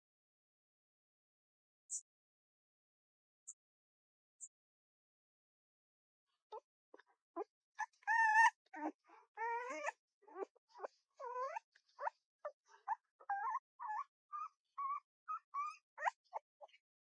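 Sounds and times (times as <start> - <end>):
small pet animal whining and yelping: 7.8 - 16.7.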